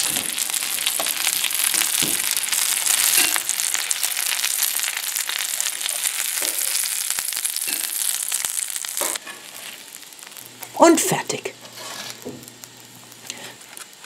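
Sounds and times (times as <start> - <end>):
patties sizzling in oil: 0.0 - 14.0
metal spatula scraping pan: 11.6 - 12.3.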